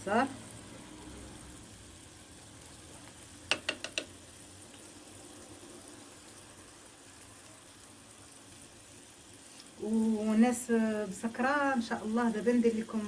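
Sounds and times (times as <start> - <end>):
food sizzling and simmering: 0.0 - 13.0
spoon knocking against dish: 3.5 - 4.1.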